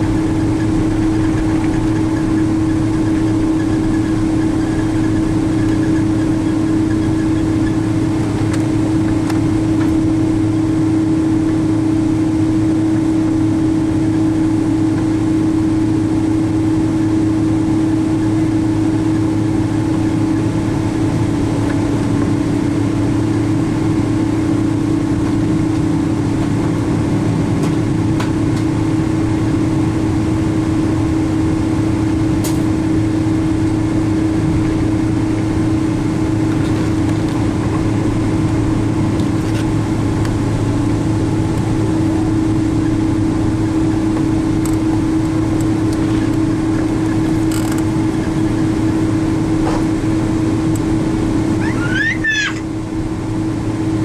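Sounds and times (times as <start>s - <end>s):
airplane cabin engine hum: 0.0s - 54.0s
faint clicks: 47.3s - 48.2s.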